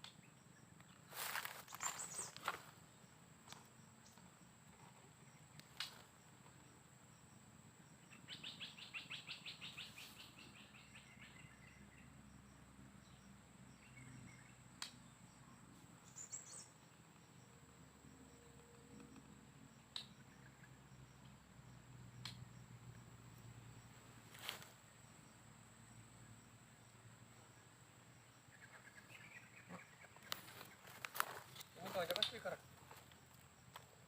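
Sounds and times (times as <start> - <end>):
songbird trill: 0.0 - 34.0
sharp clicks: 30.3 - 33.9.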